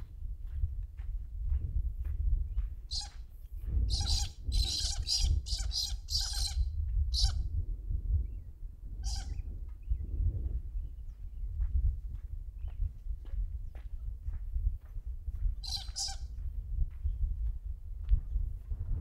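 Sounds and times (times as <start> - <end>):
wind rumble on microphone: 0.0 - 19.0
bird calling in harsh bursts: 2.9 - 3.1, 3.9 - 7.4, 9.0 - 9.4, 15.6 - 16.2.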